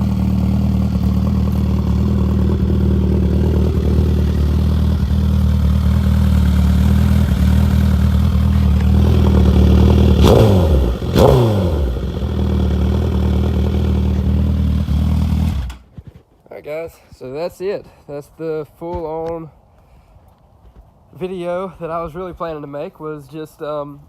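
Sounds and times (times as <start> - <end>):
motorcycle engine idling: 0.0 - 15.8
engine revving blips: 7.1 - 15.8.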